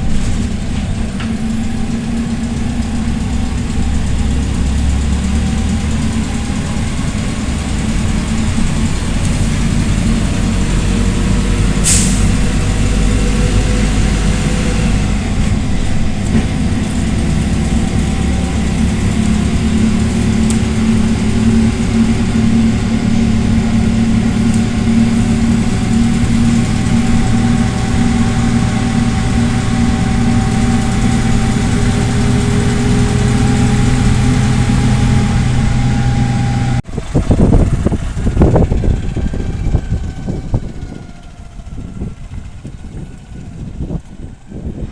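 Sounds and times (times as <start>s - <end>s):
bus engine running: 0.0s - 44.9s
uneven rumbling: 0.0s - 44.9s
air hiss: 11.8s - 12.5s.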